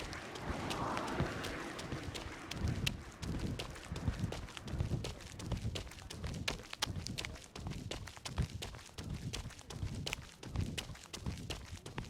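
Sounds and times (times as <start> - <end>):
running footsteps: 0.0 - 12.0
scuffs and clicks: 0.0 - 12.0.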